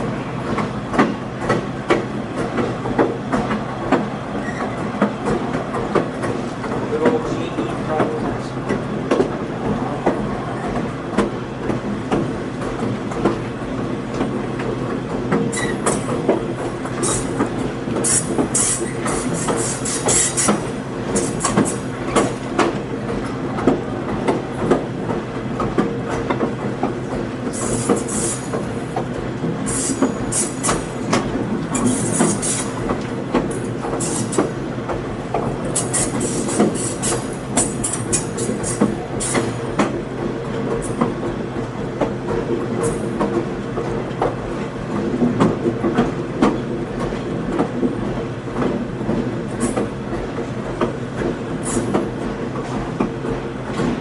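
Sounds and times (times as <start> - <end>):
train wheels clicking over rail joints: 0.4 - 54.0
high-pitched wheel squeal: 4.4 - 4.8, 15.5 - 15.8.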